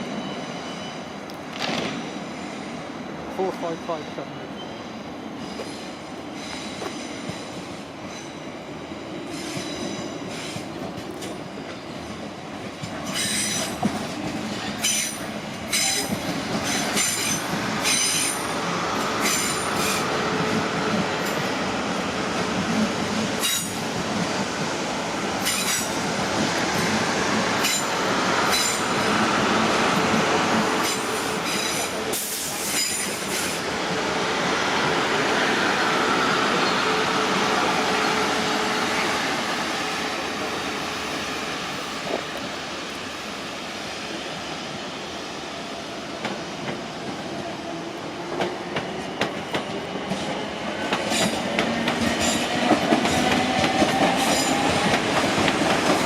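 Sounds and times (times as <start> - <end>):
train rumble: 9.6 - 56.0.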